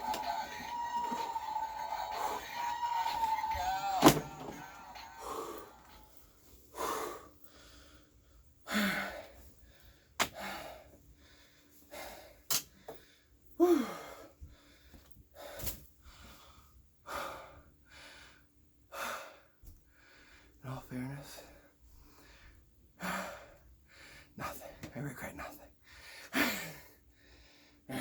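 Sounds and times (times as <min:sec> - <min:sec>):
man breathing heavily: 0:05.0 - 0:20.6, 0:21.2 - 0:24.8, 0:25.8 - 0:28.0.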